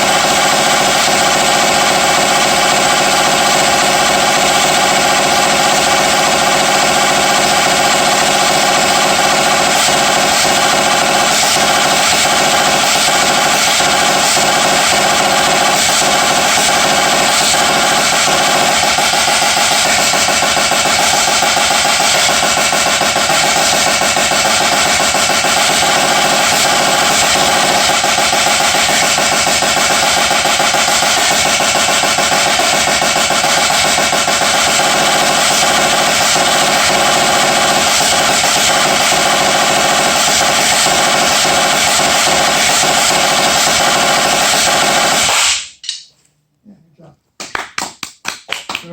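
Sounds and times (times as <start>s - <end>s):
fast drum solo: 0.0s - 45.4s.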